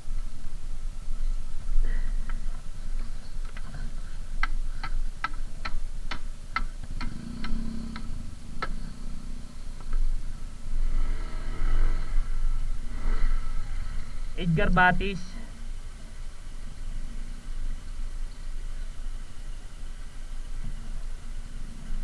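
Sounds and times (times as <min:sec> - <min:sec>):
low engine rumble: 0:00.0 - 0:22.0
turn signal ticking: 0:04.4 - 0:09.0.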